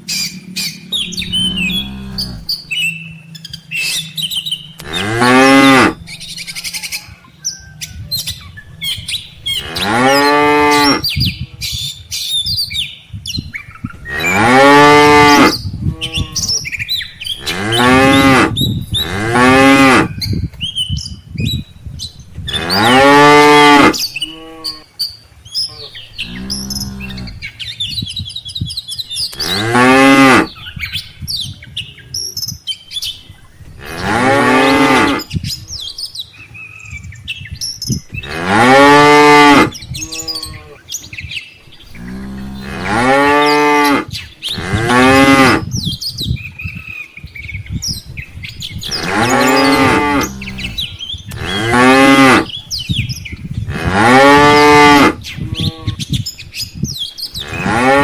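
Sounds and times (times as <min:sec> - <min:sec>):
cattle mooing: 0:01.0 - 0:02.6, 0:04.8 - 0:06.1, 0:09.6 - 0:11.0, 0:14.1 - 0:16.5, 0:22.5 - 0:24.8, 0:26.2 - 0:27.4, 0:33.8 - 0:35.3, 0:38.2 - 0:40.8, 0:42.0 - 0:45.6, 0:49.0 - 0:52.5, 0:53.7 - 0:56.0, 0:57.4 - 0:58.0.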